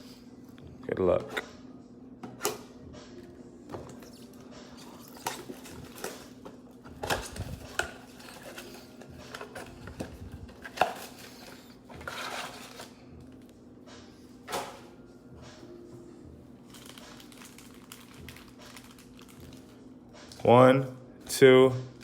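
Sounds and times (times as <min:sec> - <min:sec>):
cardboard and wrappers rustling: 0:03.9 - 0:13.4, 0:16.6 - 0:20.4.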